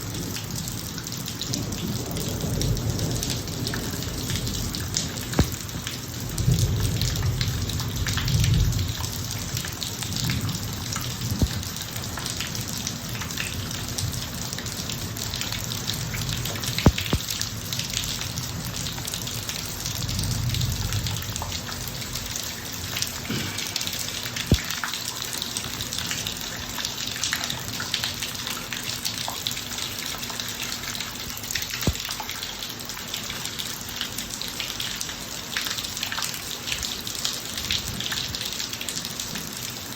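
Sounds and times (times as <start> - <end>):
rain pouring on driveway: 0.0 - 39.9
sharp drip taps: 5.3 - 5.8, 11.4 - 12.4, 16.5 - 17.4, 24.3 - 25.1, 31.6 - 32.4.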